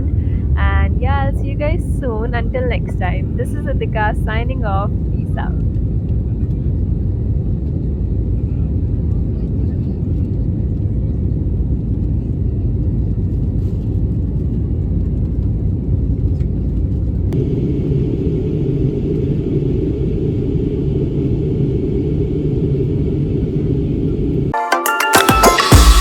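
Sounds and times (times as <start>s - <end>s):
loud low rumble: 0.0s - 8.7s, 17.1s - 24.6s.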